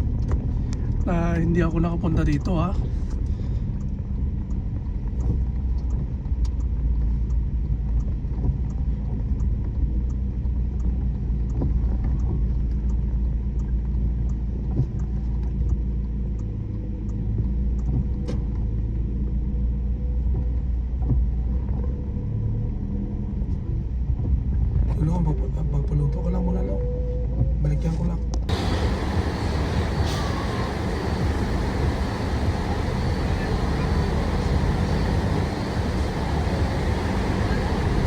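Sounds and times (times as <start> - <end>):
faint clicks: 28.5 - 38.0
road vehicle rumble: 28.5 - 38.0.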